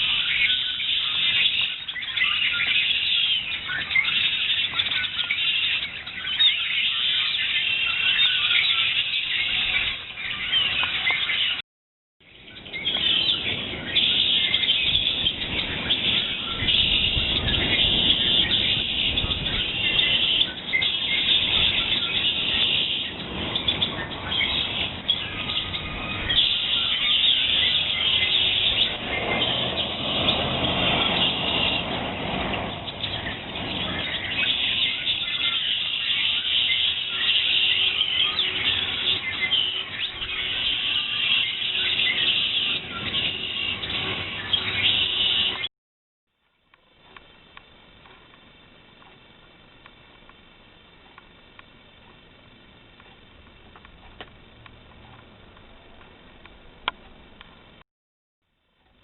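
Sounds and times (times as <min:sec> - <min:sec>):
songbirds chirping and singing: 0:00.0 - 0:11.6, 0:12.2 - 0:45.7.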